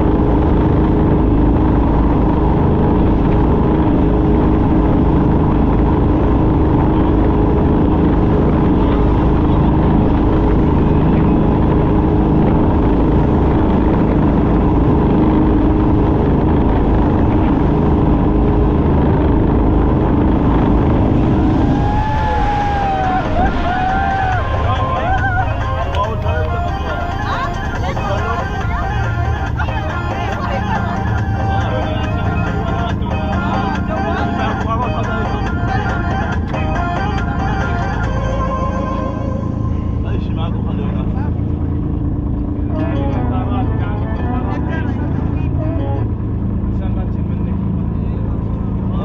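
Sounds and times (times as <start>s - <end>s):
wind and water rushing: 0.0s - 40.0s
speedboat engine running: 0.0s - 49.0s
raised voice: 21.7s - 35.0s.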